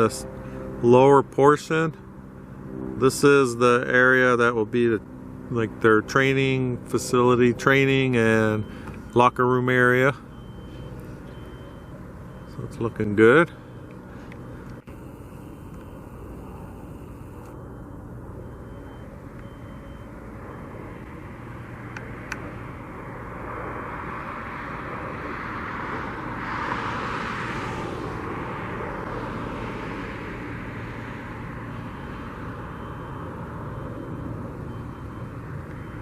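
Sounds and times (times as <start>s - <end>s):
airplane passing overhead: 0.0s - 36.0s
steady low hum: 0.0s - 36.0s.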